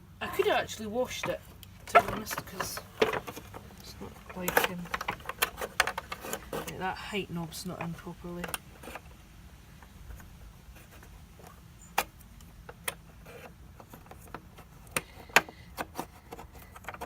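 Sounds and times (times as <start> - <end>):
plastic clicks and knocks: 1.2 - 6.8, 10.9 - 17.0.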